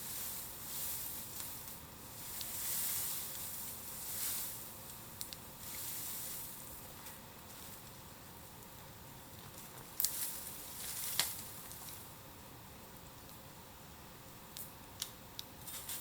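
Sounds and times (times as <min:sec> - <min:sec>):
bamboo fire hissing: 0:00.0 - 0:13.4
sharp crackling pops: 0:01.3 - 0:07.6, 0:09.4 - 0:12.0.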